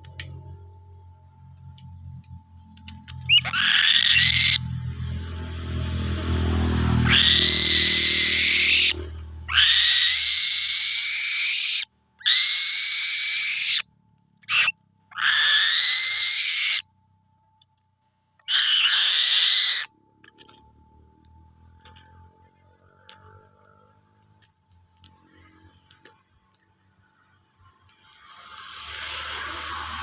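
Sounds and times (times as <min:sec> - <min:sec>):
bird of prey screaming: 0:03.2 - 0:04.7, 0:06.9 - 0:16.9, 0:18.4 - 0:19.9
low rumble: 0:04.2 - 0:09.5.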